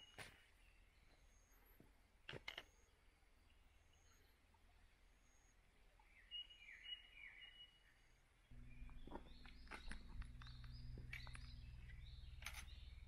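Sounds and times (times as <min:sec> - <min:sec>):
small birds chirping: 0:00.0 - 0:13.0
low steady hum: 0:08.3 - 0:13.0.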